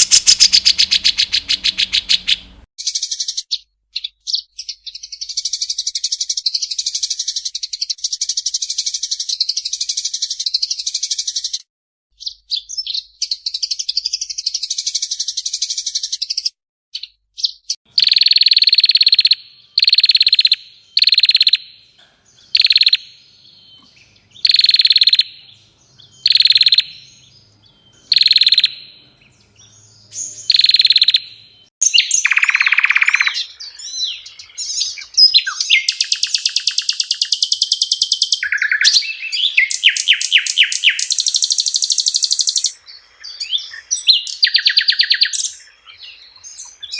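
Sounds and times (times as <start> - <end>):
songbird fast rattling trill: 0.0 - 3.7, 17.9 - 21.7, 22.5 - 23.1, 24.3 - 25.4, 26.1 - 27.2, 28.0 - 28.9, 30.2 - 42.8.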